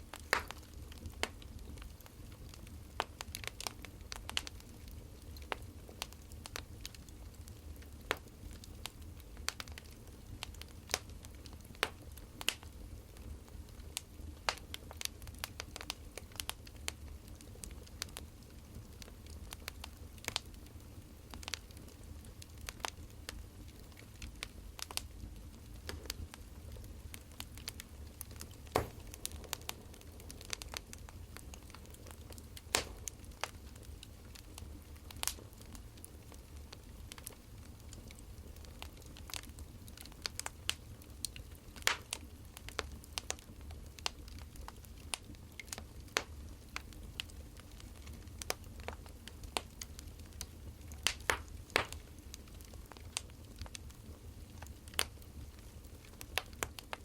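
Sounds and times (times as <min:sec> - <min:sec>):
wood fire crackling: 0:00.0 - 0:57.0
low steady rumble: 0:24.7 - 0:35.2.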